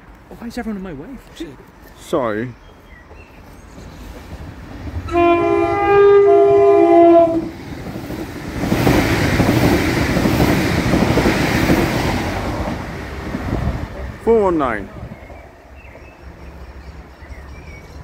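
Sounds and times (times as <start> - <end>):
train wheels rushing on rail: 2.9 - 18.0
two-tone train horn: 5.1 - 7.5.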